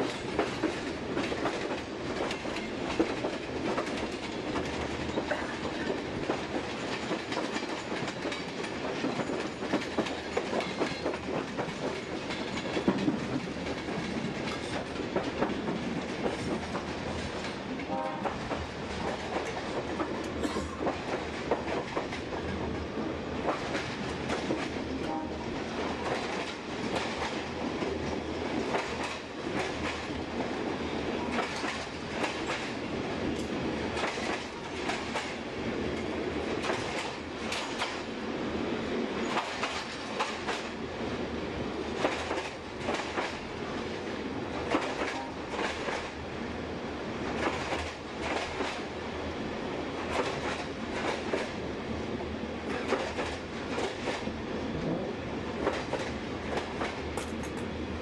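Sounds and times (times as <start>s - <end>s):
wheels clicking over rail joints: 0.0s - 22.8s, 31.2s - 38.1s, 39.2s - 40.7s, 42.0s - 43.5s, 55.6s - 57.8s
train rumbling: 0.0s - 58.0s.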